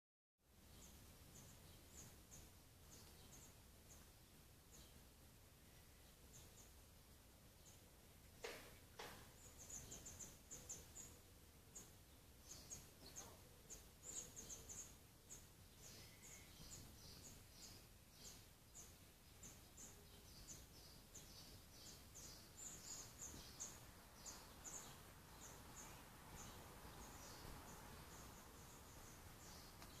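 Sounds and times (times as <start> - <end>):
low outdoor hiss: 0.4 - 30.0
faint high bird chirps: 0.6 - 6.9, 9.0 - 30.0.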